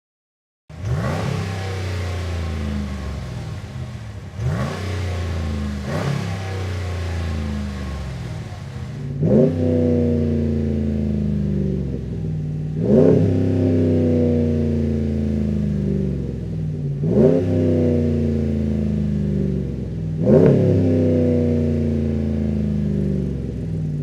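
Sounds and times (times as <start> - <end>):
car engine idling and revving: 0.7 - 24.0.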